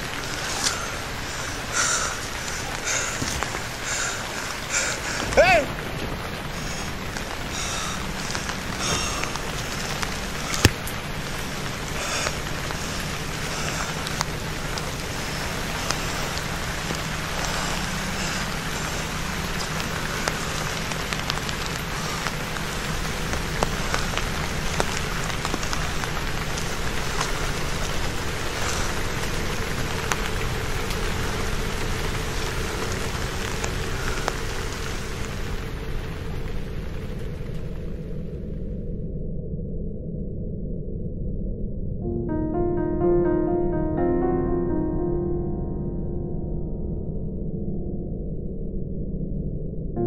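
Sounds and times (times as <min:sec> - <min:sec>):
rain falling on leaves: 0:00.0 - 0:38.3
low steady hum: 0:00.0 - 0:50.0.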